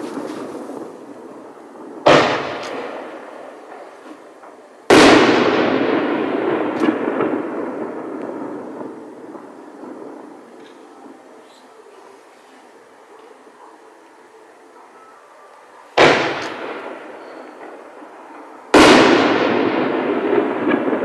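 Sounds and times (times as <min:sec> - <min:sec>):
firework shells bursting: 0:00.0 - 0:10.9, 0:16.0 - 0:21.0.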